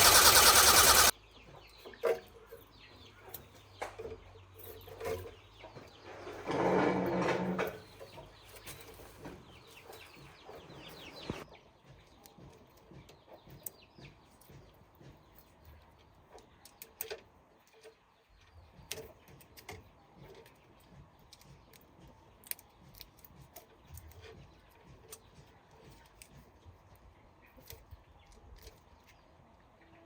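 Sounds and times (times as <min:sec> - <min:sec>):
birds chirping: 0:00.0 - 0:01.9, 0:07.9 - 0:11.5.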